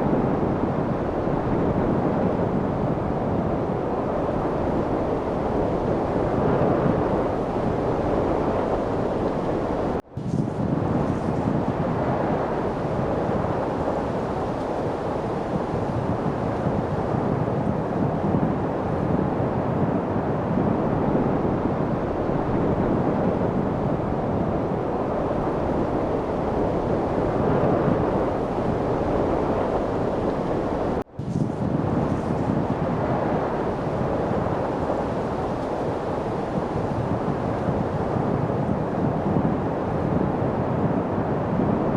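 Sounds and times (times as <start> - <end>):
light wind whooshing: 0.0 - 41.9.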